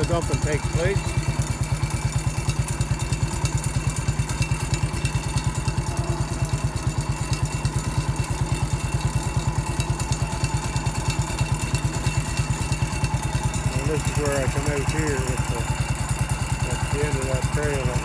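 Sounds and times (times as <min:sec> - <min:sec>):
garden tractor engine running: 0:00.0 - 0:18.0.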